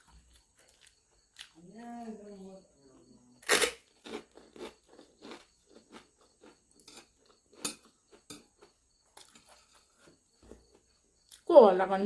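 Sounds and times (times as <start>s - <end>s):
person chewing food: 0.0s - 1.6s, 3.4s - 11.5s.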